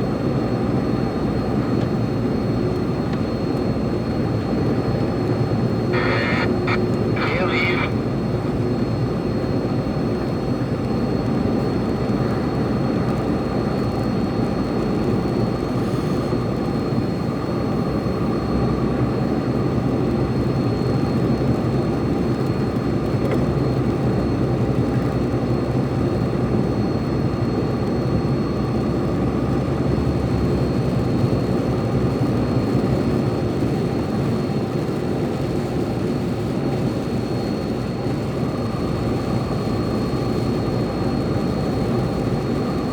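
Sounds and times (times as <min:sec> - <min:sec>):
lorry engine and road drone: 0:05.7 - 0:08.2
thin high whine: 0:05.9 - 0:08.0.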